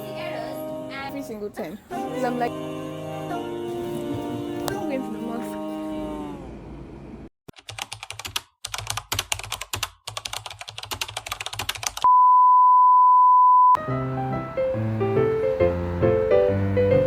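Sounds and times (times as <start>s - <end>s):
fast typing on keyboard: 7.5s - 12.1s
piano music: 13.8s - 17.0s.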